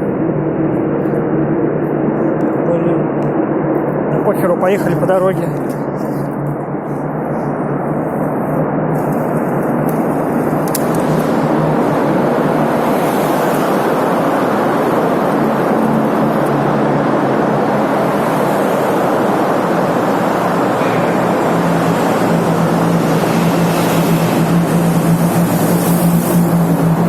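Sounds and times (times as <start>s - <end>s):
low engine hum: 0.0s - 27.0s
road traffic roar in a tunnel: 0.0s - 27.0s
wind rushing over microphone: 0.0s - 27.0s.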